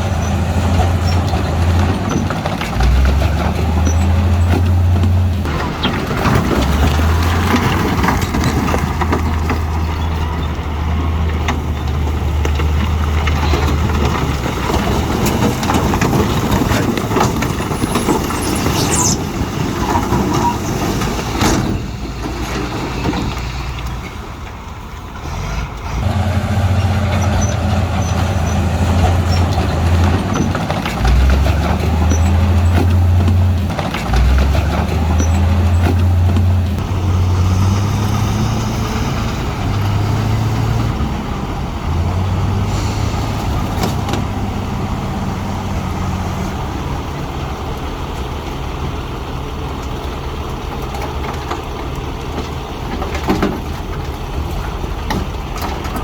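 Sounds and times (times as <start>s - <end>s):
rock and metal rattling: 0.0s - 23.3s
diesel machinery engine drone: 0.0s - 56.0s.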